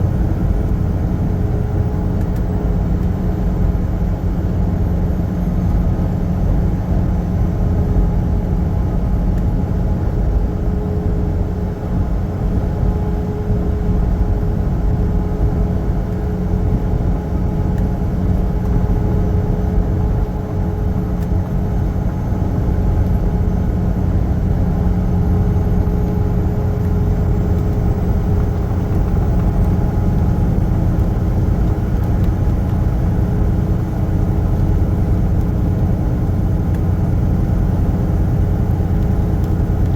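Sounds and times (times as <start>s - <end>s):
road rumble: 0.0s - 39.9s
truck engine drone: 0.0s - 39.9s.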